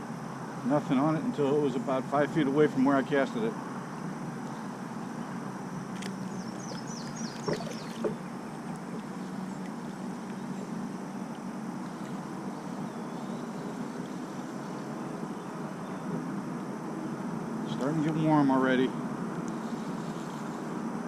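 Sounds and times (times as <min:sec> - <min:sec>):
steady background noise: 0:00.0 - 0:21.0
bird chirping: 0:04.4 - 0:10.8, 0:11.9 - 0:16.1.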